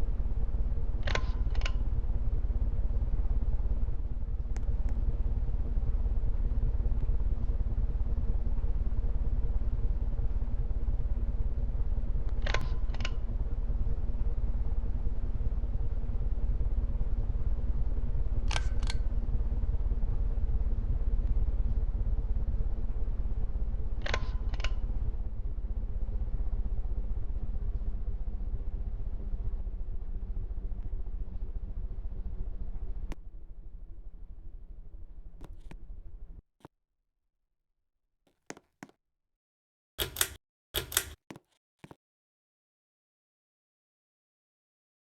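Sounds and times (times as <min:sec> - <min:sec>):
sharp double click: 0:40.0 - 0:41.2.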